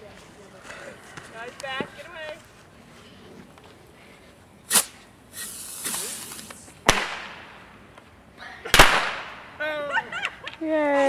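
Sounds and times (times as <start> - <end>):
bottle rocket hissing: 4.6 - 7.2
firework crack: 4.6 - 8.0, 8.6 - 9.6.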